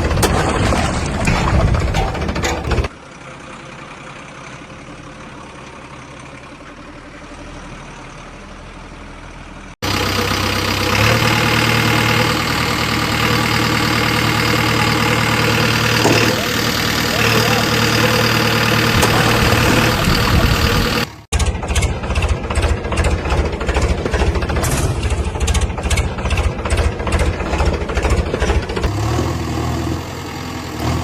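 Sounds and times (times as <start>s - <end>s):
heavy diesel engines running: 0.0s - 31.0s.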